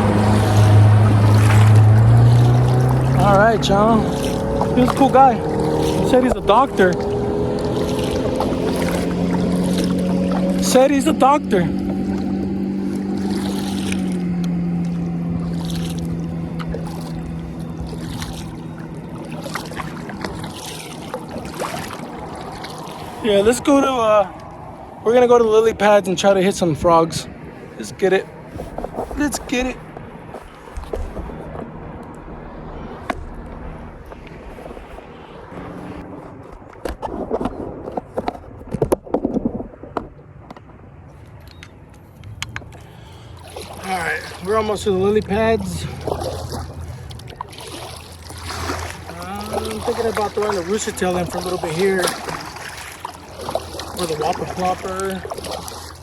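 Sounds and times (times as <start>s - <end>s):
paddle strokes splashing: 0.0s - 26.0s, 26.8s - 56.0s
motorboat engine humming: 0.0s - 56.0s
water swishing: 0.0s - 56.0s.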